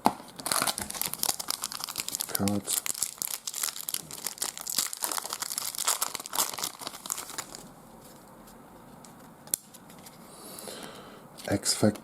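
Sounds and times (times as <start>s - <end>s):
wrapper tearing and crinkling: 0.4s - 7.7s.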